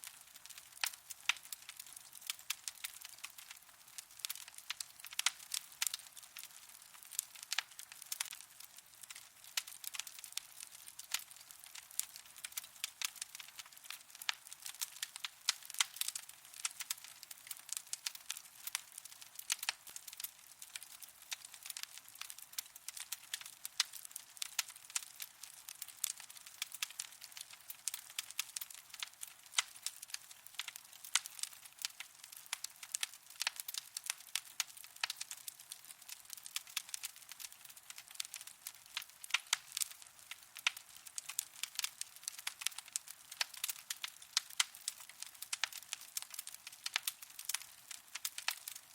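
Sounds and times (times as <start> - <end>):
soft steady hiss: 0.0 - 48.9
wood fire crackling and popping: 0.0 - 48.9.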